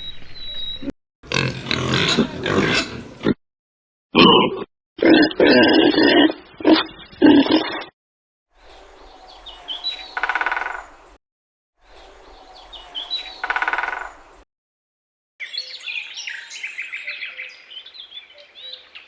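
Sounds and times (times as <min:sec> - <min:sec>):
birds chirping and trilling: 0:00.0 - 0:00.9, 0:08.6 - 0:11.2, 0:11.8 - 0:14.4
pig grunting: 0:01.2 - 0:03.4, 0:04.2 - 0:07.9.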